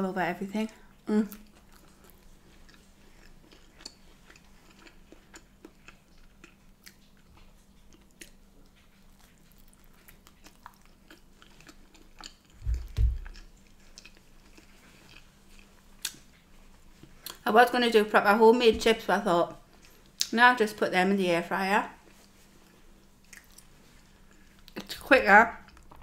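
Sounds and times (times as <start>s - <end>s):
chewing crusty bread: 0.7s - 17.5s, 21.9s - 26.0s
dull thumps: 12.6s - 13.4s.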